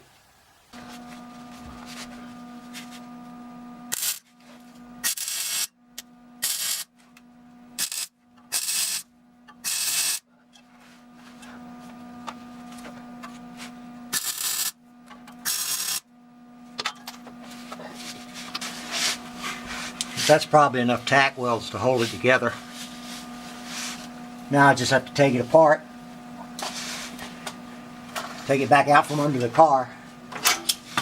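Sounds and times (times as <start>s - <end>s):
steady hum: 0.3s - 31.0s
sizzling welding arc bursts: 3.9s - 4.3s, 5.0s - 5.7s, 6.4s - 6.9s, 7.8s - 10.2s, 14.1s - 14.8s, 15.4s - 16.0s.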